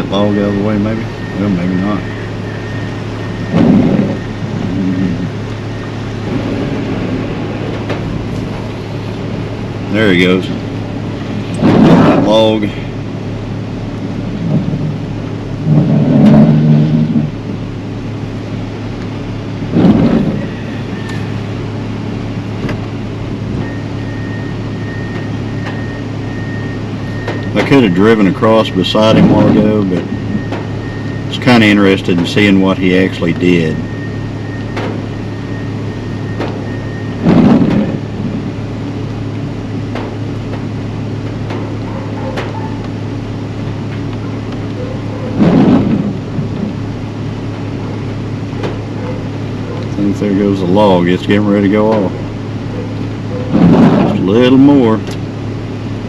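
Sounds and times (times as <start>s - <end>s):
diesel engine revving: 0.0s - 56.0s
loud thump: 3.5s - 4.2s, 11.6s - 12.3s, 37.2s - 38.4s, 45.4s - 46.7s, 53.5s - 54.2s.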